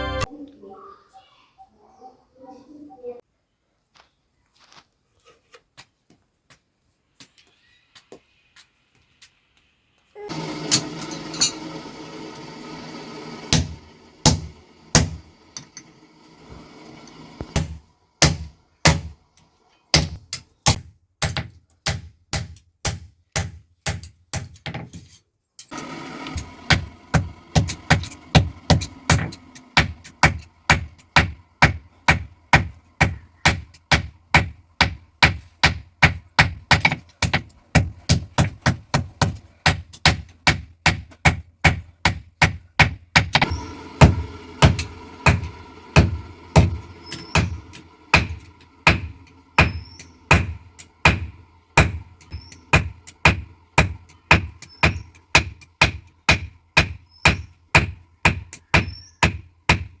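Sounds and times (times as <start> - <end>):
hammer striking steel on anvil: 43.4 - 60.0.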